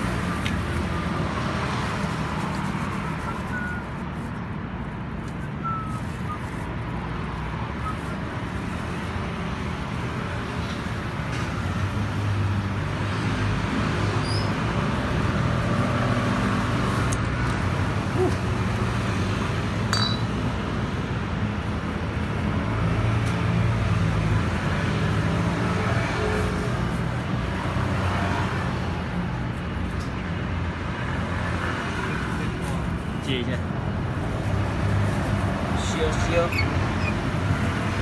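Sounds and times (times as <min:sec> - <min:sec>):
road traffic rumble: 0:00.0 - 0:38.0
sharp metallic clink: 0:17.1 - 0:17.9, 0:19.9 - 0:20.4.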